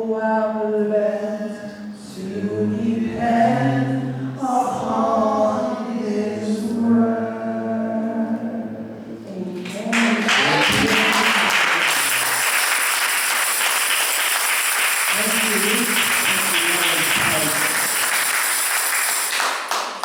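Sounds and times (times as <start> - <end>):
congregation applauding: 9.6 - 20.0
person speaking: 15.1 - 17.9.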